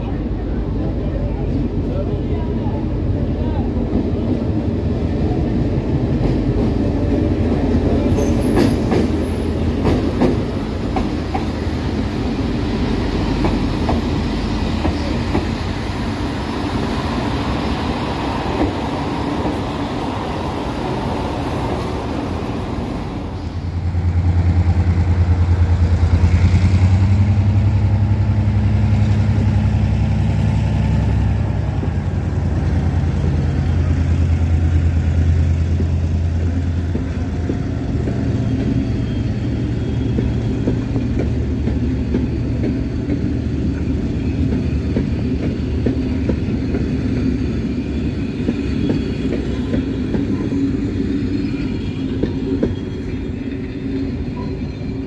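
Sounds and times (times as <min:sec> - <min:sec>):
diesel locomotive engine hum: 0:00.0 - 0:55.0
train wheel clatter: 0:06.0 - 0:16.3, 0:33.6 - 0:55.0
brief high squeal: 0:54.3 - 0:55.0.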